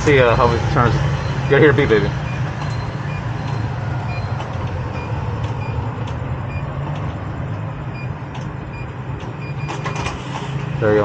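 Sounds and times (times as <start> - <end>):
low motor hum: 0.0 - 9.6
high electronic keypad beeps: 1.1 - 6.8.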